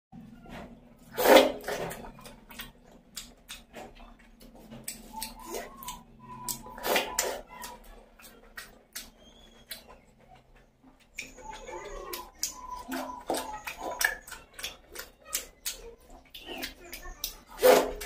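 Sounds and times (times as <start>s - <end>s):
wet chewing and lip-smacking: 1.0s - 18.0s
small mouth clicks: 2.2s - 4.0s, 4.7s - 9.9s.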